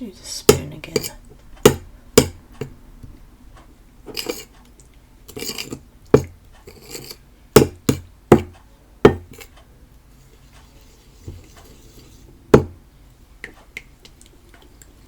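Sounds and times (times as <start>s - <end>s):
spoon scraping in bowl: 0.8s - 1.2s, 4.1s - 4.5s, 5.3s - 7.2s, 9.3s - 9.5s, 10.2s - 12.3s.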